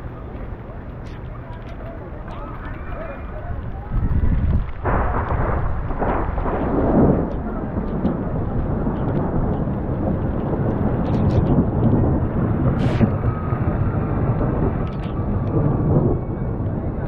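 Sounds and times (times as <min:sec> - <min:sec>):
rainstorm low rumble: 0:00.0 - 0:17.0.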